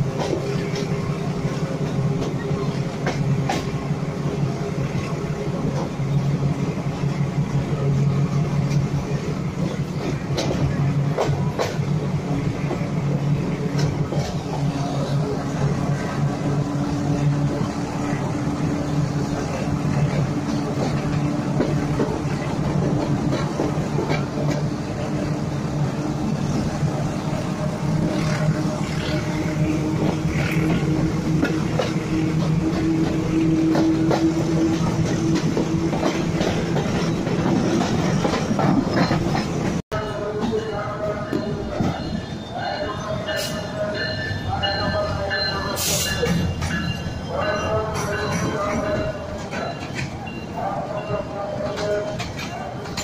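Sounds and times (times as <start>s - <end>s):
train rumbling: 0.0s - 53.0s
wheels knocking on rail joints: 9.6s - 14.7s, 15.6s - 42.2s.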